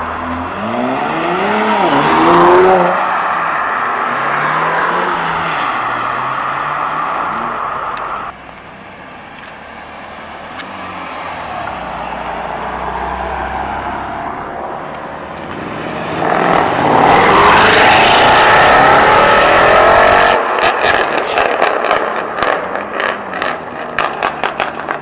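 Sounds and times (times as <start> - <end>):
car revving hard: 0.0 - 8.3, 15.6 - 24.2
car engines accelerating: 0.0 - 25.0.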